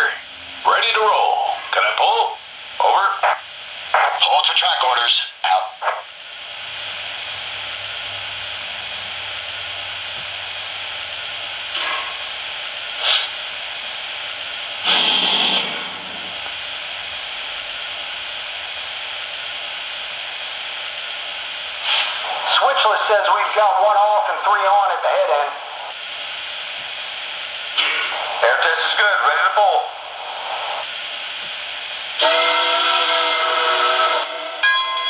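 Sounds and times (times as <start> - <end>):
steady hiss of steam: 8.5 - 23.4, 25.4 - 34.6
loud steam release: 12.9 - 13.5, 14.8 - 16.4, 21.8 - 23.2, 27.7 - 31.2
short steam puffs: 12.9 - 13.5, 14.8 - 16.4, 21.7 - 23.0.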